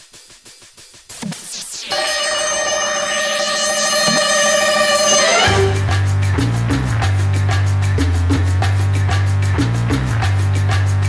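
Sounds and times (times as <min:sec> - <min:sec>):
falling electronic sweeps: 0:01.7 - 0:06.0
loud sustained chord: 0:01.9 - 0:06.1.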